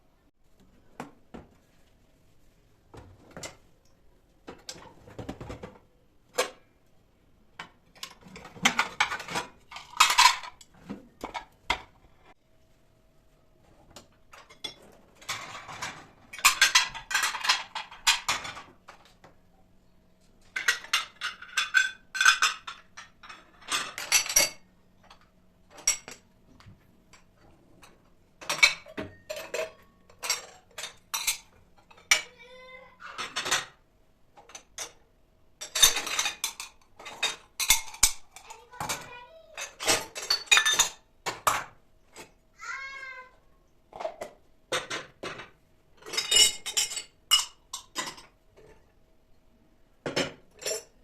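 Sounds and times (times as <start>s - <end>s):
dishes and cutlery clattering: 7.6s - 12.4s, 14.3s - 19.1s, 20.4s - 32.4s, 33.0s - 33.8s, 34.4s - 35.0s, 35.6s - 42.3s, 43.9s - 48.9s, 50.0s - 51.0s.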